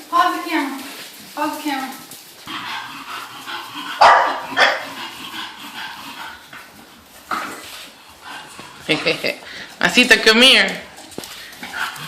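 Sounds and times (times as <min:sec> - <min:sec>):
puppy barking: 0:04.0 - 0:05.0.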